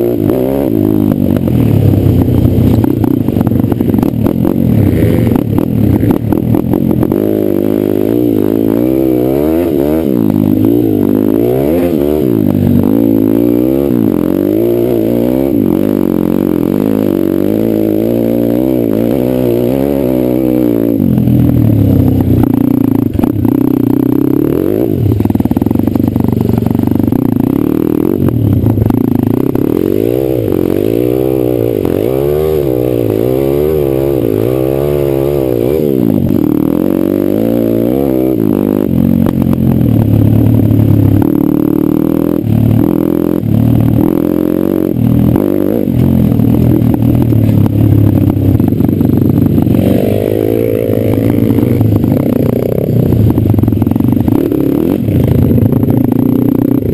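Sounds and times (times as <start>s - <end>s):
pit bike engine revving: 0.0s - 56.9s.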